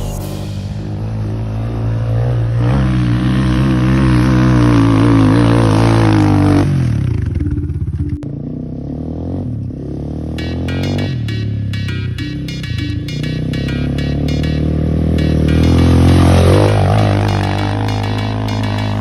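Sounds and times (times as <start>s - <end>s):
dirt bike engine revving: 8.5s - 19.0s.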